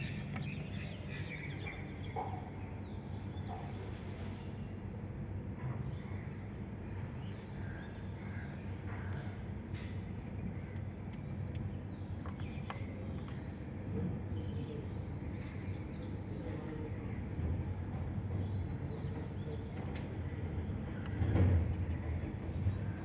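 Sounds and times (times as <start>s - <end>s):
steady low hum: 0.0s - 23.0s
sharp clicks: 10.4s - 13.4s.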